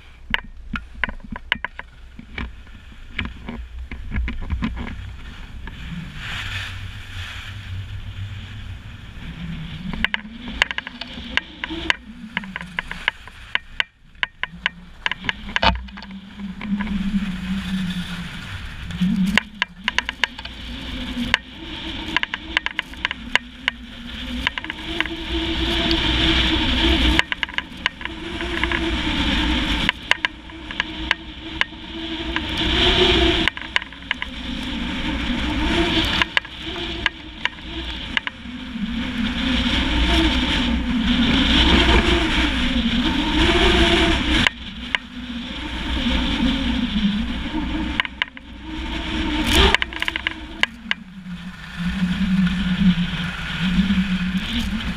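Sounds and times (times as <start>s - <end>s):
wind on camera microphone: 0.0s - 54.9s
skis hissing on snow: 5.0s - 9.7s
low wavering whistle: 13.8s - 54.9s
small clicks: 18.8s - 28.8s.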